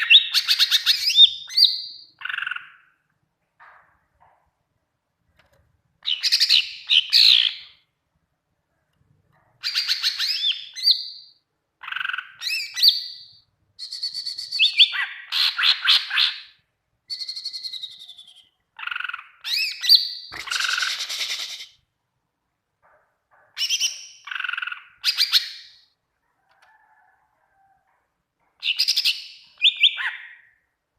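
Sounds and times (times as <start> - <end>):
bird singing chirps and trills: 9.6 - 16.4, 17.1 - 21.7, 28.6 - 30.6.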